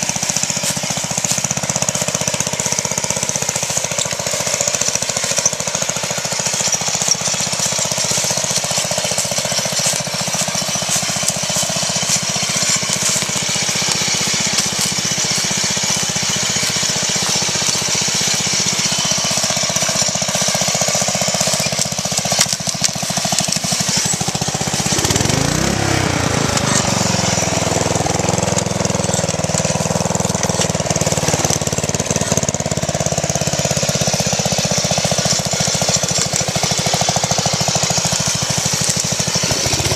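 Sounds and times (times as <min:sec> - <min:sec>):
riding lawn mower engine running: 0:00.0 - 0:39.9.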